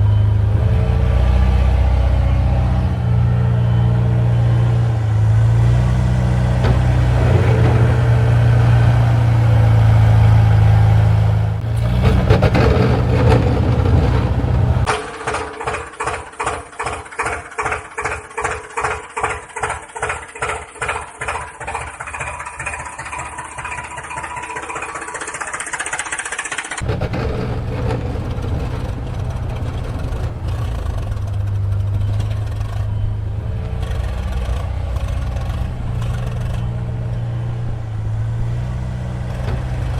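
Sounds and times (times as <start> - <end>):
machine low hum: 0.0 - 14.9, 26.8 - 39.9.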